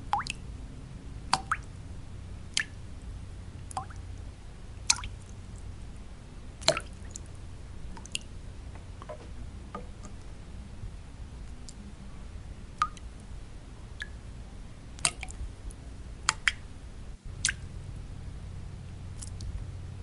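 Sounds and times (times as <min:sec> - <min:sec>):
water drops plinking: 0:00.0 - 0:00.4, 0:01.4 - 0:01.7, 0:03.7 - 0:04.0, 0:04.9 - 0:05.2, 0:06.6 - 0:07.3, 0:12.8 - 0:13.1
low white noise: 0:00.0 - 0:20.0.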